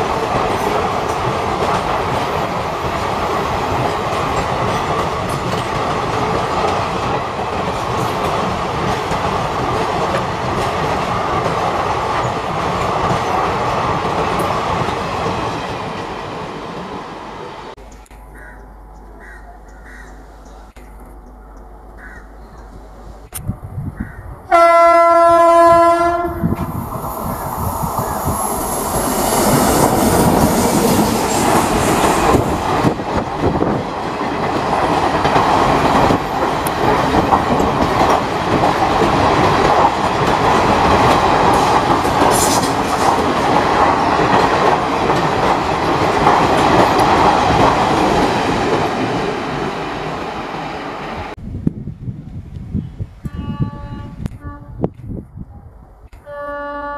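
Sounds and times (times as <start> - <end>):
train wheels clattering over rails: 0.0 - 16.3, 26.4 - 50.7
train horn blast: 24.5 - 26.6, 53.2 - 54.9, 56.2 - 56.9.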